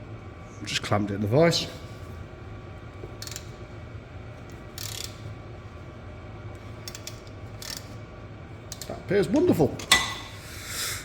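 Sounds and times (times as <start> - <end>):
ratchet pawl clicking: 3.2 - 3.5, 4.5 - 5.3, 6.8 - 8.0, 8.7 - 9.0.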